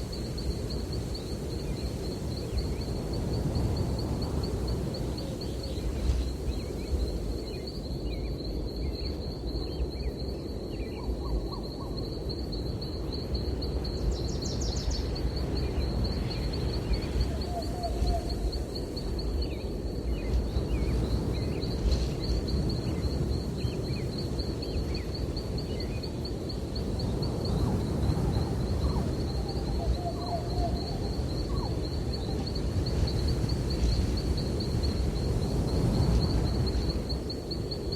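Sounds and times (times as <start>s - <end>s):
breeze rustling trees: 0.0s - 37.9s.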